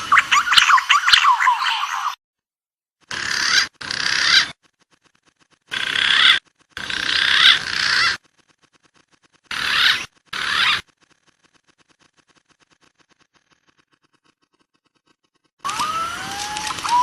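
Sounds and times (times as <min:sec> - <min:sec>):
pigeon calls from a recording: 0:00.0 - 0:02.2, 0:03.0 - 0:04.8, 0:05.7 - 0:08.3, 0:09.5 - 0:10.9.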